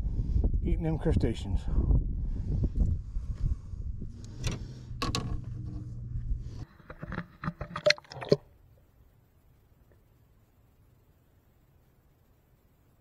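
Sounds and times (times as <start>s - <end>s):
wind on microphone: 0.0s - 6.7s
water splashing and dripping: 6.9s - 8.5s.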